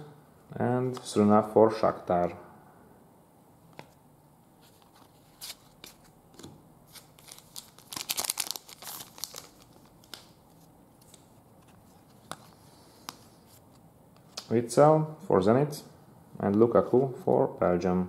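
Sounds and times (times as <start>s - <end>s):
wrapper crinkling and tearing: 6.9s - 11.2s.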